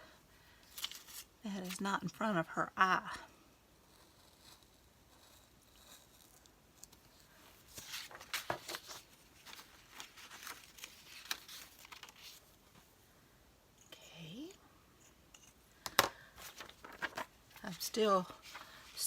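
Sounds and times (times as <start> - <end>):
paper rustling and crinkling: 0.6 - 1.8, 7.2 - 12.6, 16.4 - 19.0
paper crackles and taps: 7.7 - 12.4, 15.8 - 18.8.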